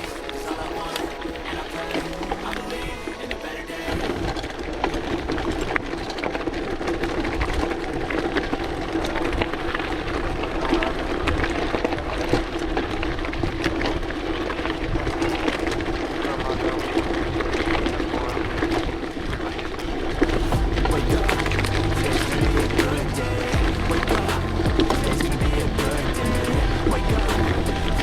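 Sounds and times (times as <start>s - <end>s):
steady hum: 20.5s - 28.0s.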